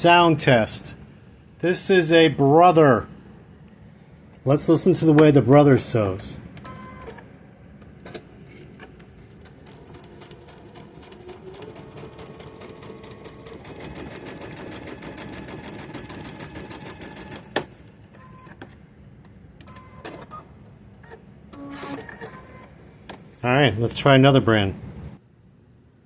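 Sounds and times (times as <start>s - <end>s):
sewing machine stitching: 8.0s - 17.7s.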